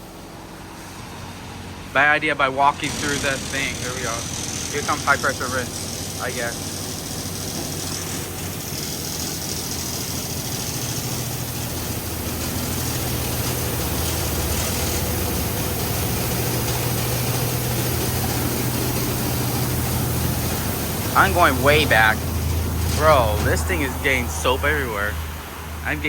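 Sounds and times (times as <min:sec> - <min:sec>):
pump machine hum: 0:00.0 - 0:26.0
water spray hissing: 0:02.8 - 0:26.0.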